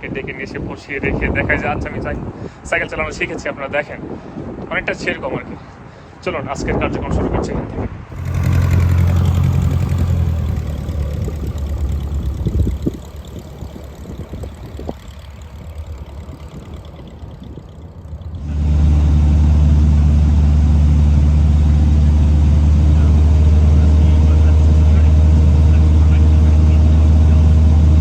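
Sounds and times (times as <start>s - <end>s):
engine humming: 8.1s - 28.0s.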